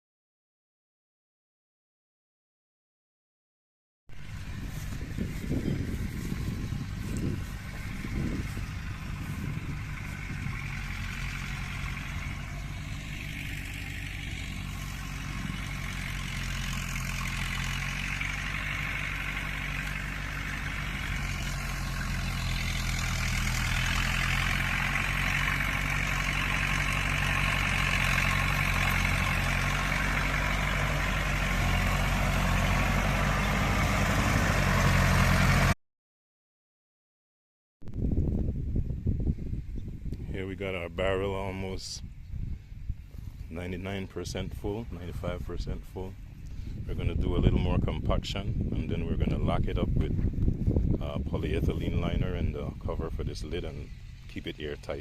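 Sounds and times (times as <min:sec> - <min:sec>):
engine running steadily: 0:04.1 - 0:35.8, 0:37.9 - 0:55.0.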